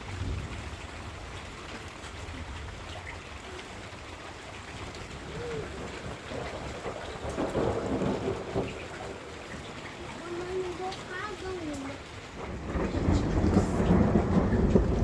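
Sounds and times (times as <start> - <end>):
heavy rain: 0.0 - 15.0
low rumble: 12.5 - 15.0.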